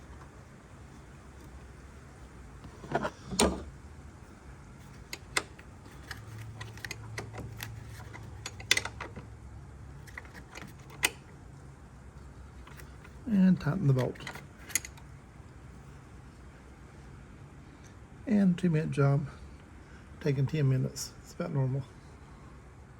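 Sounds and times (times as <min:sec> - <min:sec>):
hand tools clicking and knocking: 0:05.1 - 0:09.2.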